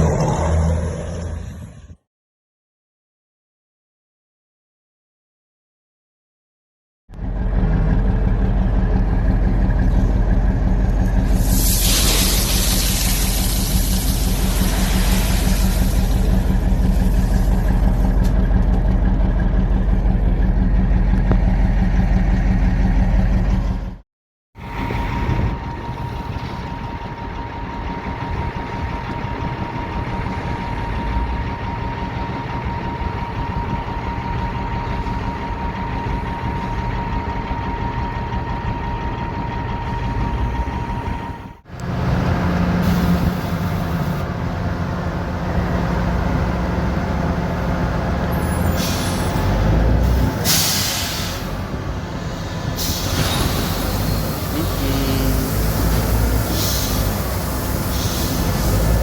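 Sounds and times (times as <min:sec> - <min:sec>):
diesel truck engine running: 0:07.1 - 0:24.0, 0:24.6 - 0:59.0
air hissing bursts: 0:11.3 - 0:16.1.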